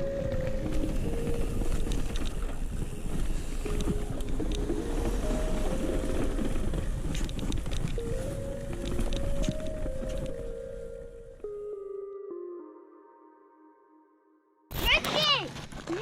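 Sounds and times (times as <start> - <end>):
wind rush on microphone: 0.0 - 11.3.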